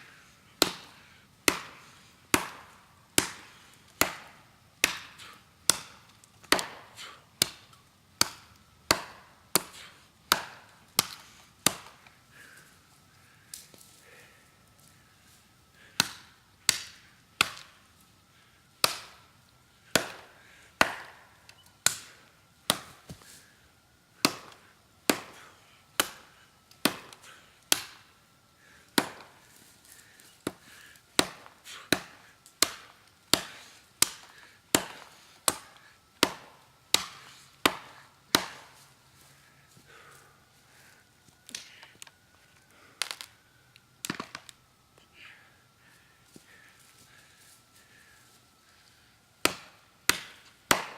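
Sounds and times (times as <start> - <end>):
machete chopping wood: 0.6 - 12.0, 15.9 - 17.8, 18.8 - 19.2, 19.9 - 23.3, 24.2 - 28.1, 28.9 - 29.4, 30.4 - 38.8, 44.0 - 44.5, 49.4 - 50.9.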